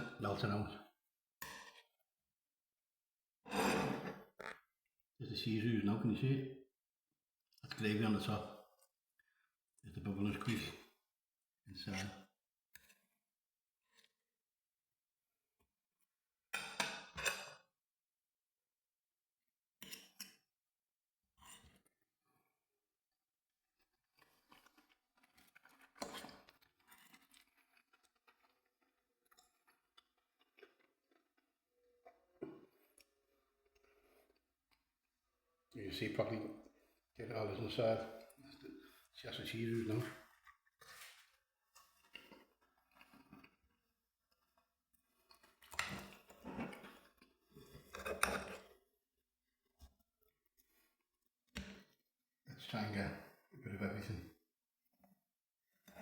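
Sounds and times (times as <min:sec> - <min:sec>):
faint eating sounds: 0:23.8 - 0:48.9.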